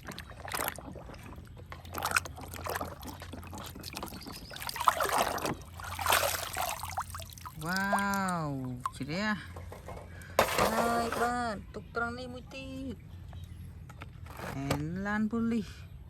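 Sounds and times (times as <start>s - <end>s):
water pouring and splashing: 0.0s - 9.0s, 10.4s - 11.3s.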